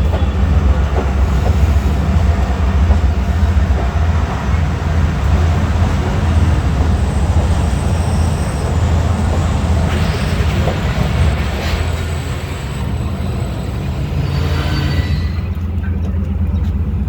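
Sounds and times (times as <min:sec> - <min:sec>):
diesel locomotive idling hum: 0:15.4 - 0:17.0.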